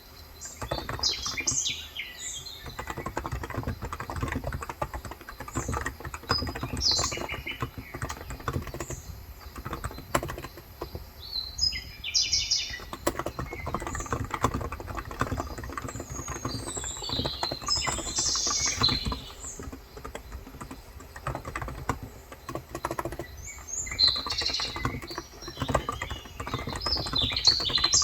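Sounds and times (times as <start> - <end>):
birds chirping: 0.0 - 28.0
fast keyboard typing: 0.0 - 28.0.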